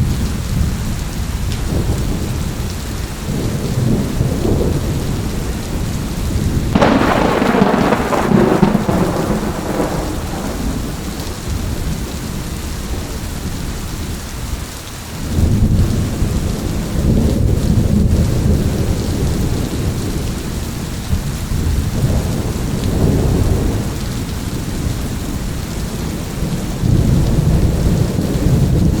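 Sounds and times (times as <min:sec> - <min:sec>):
rumble of thunder: 0:00.0 - 0:14.2, 0:15.2 - 0:29.0
steady rain falling: 0:00.0 - 0:29.0
thunderclap: 0:03.2 - 0:13.7, 0:21.1 - 0:29.0.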